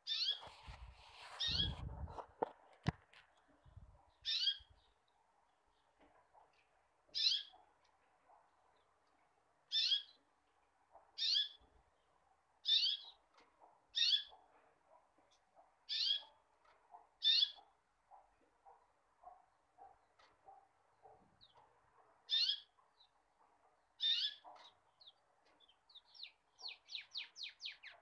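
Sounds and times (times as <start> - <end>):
bird chirping calls: 0.0 - 1.9, 3.4 - 6.0, 7.1 - 7.6, 9.7 - 10.3, 11.0 - 13.3, 13.9 - 14.4, 15.3 - 16.4, 17.1 - 17.7, 21.3 - 23.2, 24.0 - 28.0.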